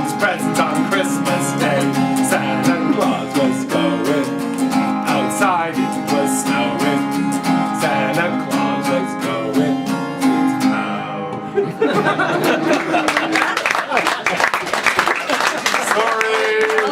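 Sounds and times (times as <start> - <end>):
guitar strumming: 0.0 - 13.3.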